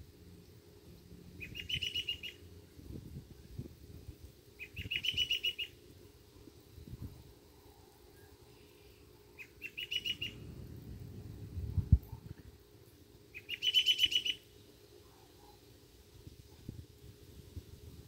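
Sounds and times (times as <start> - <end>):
songbird chirping: 0.4 - 2.8, 4.6 - 5.8, 7.6 - 10.6, 13.3 - 15.7
low rumble: 10.2 - 12.5.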